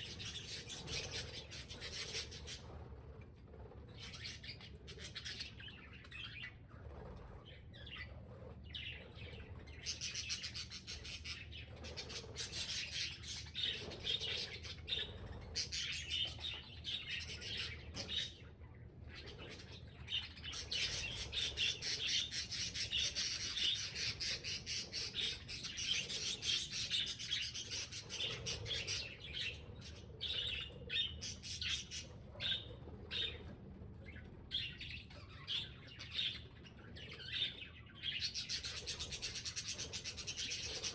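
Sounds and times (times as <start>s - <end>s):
budgerigars chattering and chirping: 0.0s - 2.8s, 8.7s - 40.9s.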